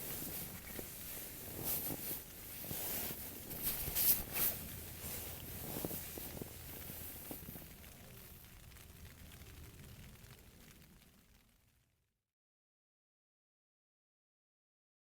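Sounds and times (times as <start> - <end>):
rustling of camping gear: 0.0 - 7.8.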